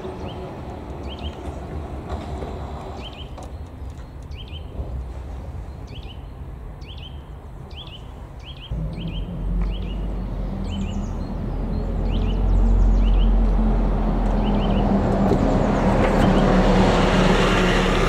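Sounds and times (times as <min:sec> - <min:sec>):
low outdoor rumble: 0:08.2 - 0:18.0
low engine drone: 0:08.7 - 0:18.0.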